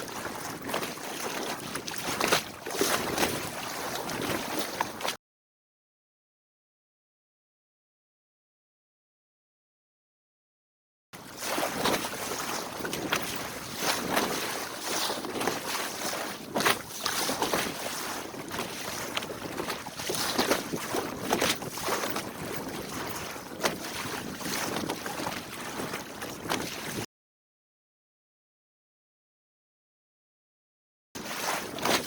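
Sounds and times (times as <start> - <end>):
rushing water: 0.0 - 5.2, 11.2 - 27.1
water splashing against hull: 0.0 - 5.2, 11.2 - 27.1, 31.2 - 32.0.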